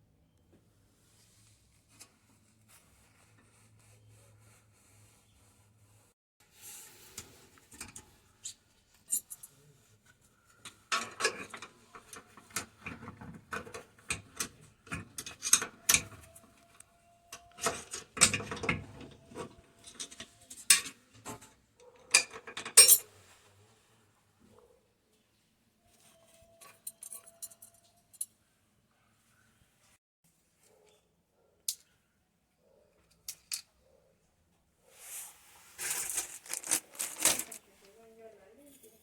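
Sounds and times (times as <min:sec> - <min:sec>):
hard objects clinking: 0:35.8 - 0:37.6.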